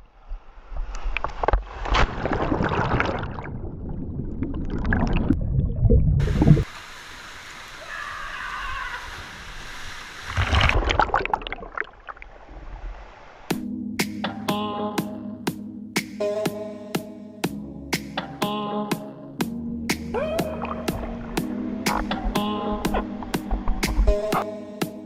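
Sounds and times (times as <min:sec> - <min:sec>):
rushing splashing water: 0:01.7 - 0:03.8, 0:06.2 - 0:12.5.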